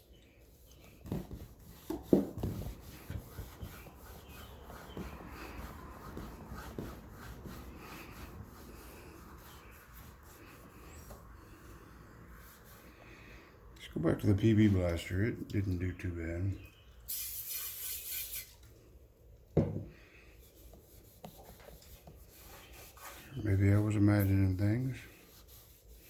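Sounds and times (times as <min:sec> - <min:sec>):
cloth wiping metal housing: 0:00.4 - 0:11.8, 0:20.4 - 0:26.0.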